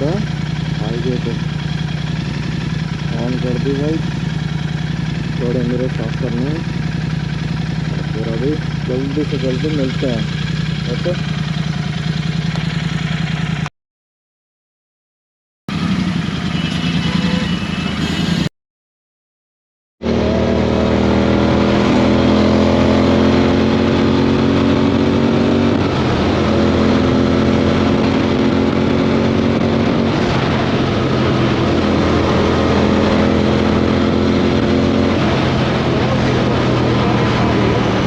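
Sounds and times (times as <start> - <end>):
motorcycle engine running: 0.0 - 13.7, 15.7 - 18.4, 20.0 - 38.0.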